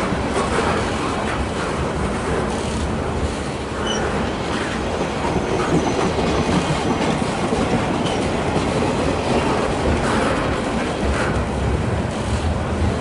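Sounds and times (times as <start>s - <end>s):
train rumbling past: 0.0s - 13.0s
wheels clacking over rail joints: 3.8s - 13.0s.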